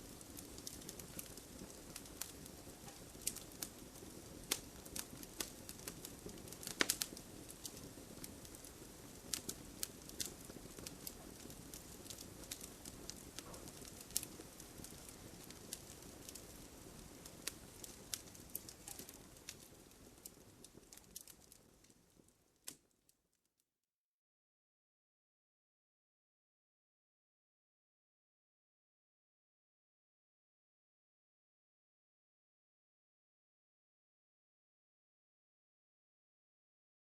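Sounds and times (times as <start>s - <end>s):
fire hissing: 0.0s - 22.0s
wood fire crackling and popping: 0.0s - 23.0s.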